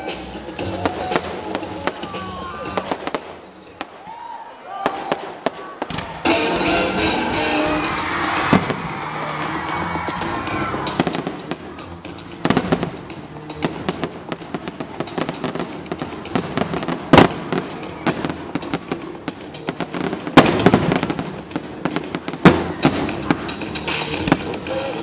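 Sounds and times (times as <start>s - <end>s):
fireworks crackling and popping: 0.1s - 4.2s, 4.8s - 7.1s, 8.0s - 25.0s
loud firework bangs: 0.8s - 4.1s, 8.3s - 9.1s, 9.7s - 24.7s.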